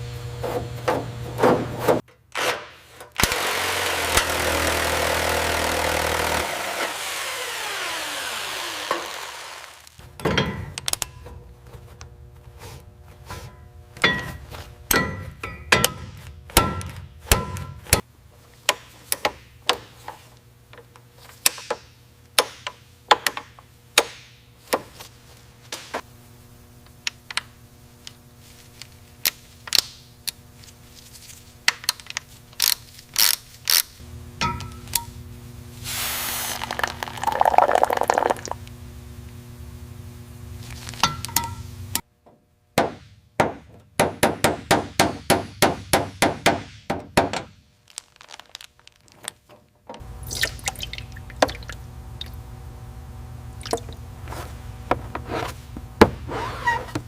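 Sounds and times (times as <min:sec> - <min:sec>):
power tool winding down: 0:03.2 - 0:10.0.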